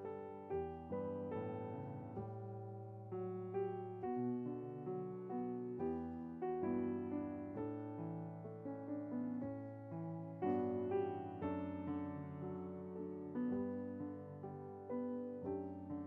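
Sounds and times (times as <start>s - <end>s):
piano playing slow chords: 0.0s - 16.0s.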